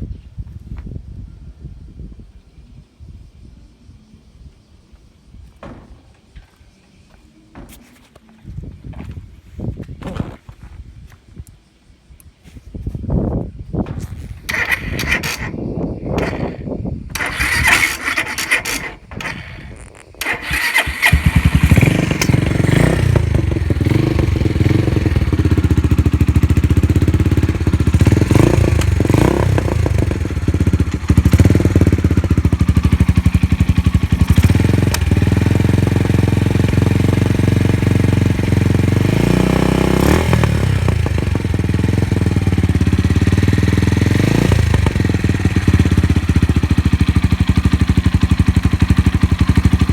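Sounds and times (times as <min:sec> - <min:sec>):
motorcycle engine cranking: 0:13.9 - 0:49.9
engine throttle blips: 0:14.4 - 0:49.9
motorcycle engine idling loud: 0:14.5 - 0:49.9.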